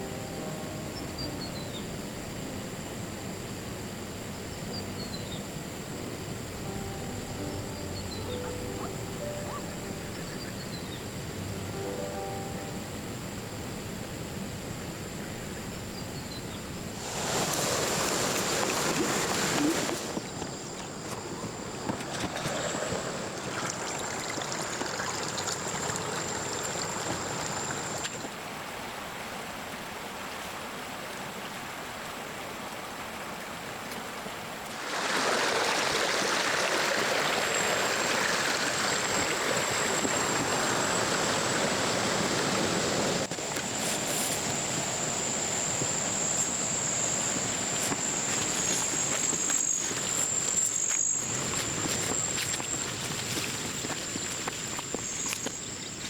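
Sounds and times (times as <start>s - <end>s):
running water: 17.0s - 56.0s.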